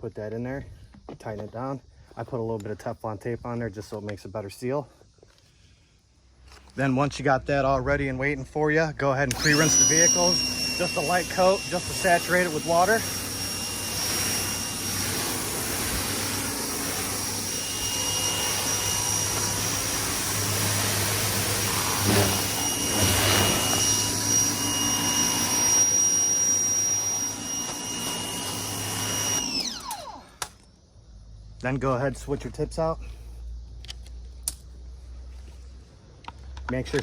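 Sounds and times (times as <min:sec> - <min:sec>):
pressure washer motor whining: 0:09.2 - 0:30.5
water spray hissing: 0:09.6 - 0:29.3.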